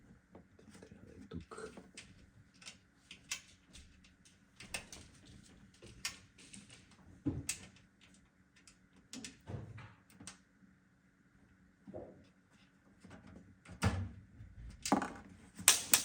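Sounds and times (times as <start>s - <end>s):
computer parts clicking and knocking: 14.9s - 16.0s.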